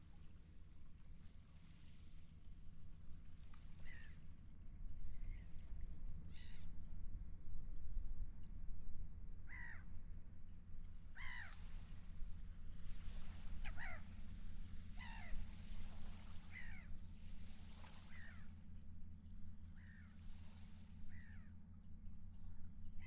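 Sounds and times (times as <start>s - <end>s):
wind: 0.0s - 23.0s
gulls calling: 11.1s - 11.6s, 13.4s - 14.2s, 14.9s - 17.0s, 18.0s - 18.6s
water rumbling: 11.7s - 22.9s.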